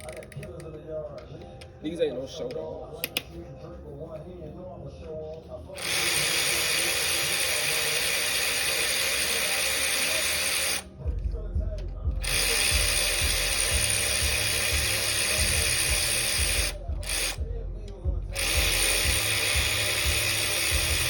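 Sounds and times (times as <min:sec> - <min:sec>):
power ratchet spinning bolts: 0:05.8 - 0:10.9, 0:12.2 - 0:21.0.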